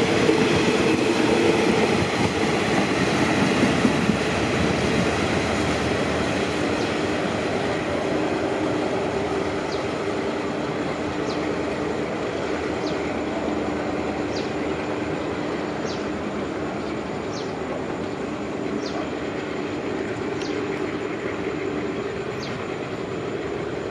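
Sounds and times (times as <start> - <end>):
train wheels rumbling on rails: 0.0 - 23.9.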